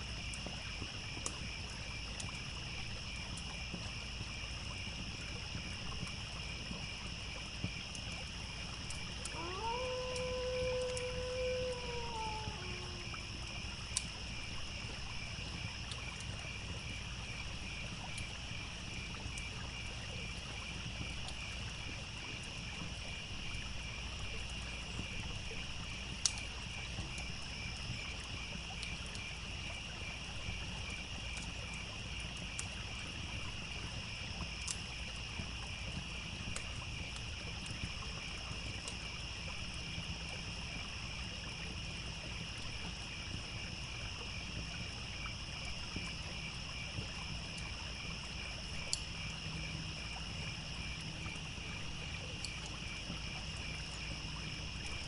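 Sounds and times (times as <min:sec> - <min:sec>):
crickets chirping: 0:00.0 - 0:55.0
campfire crackling and popping: 0:00.2 - 0:16.9, 0:32.3 - 0:39.0, 0:48.6 - 0:49.1.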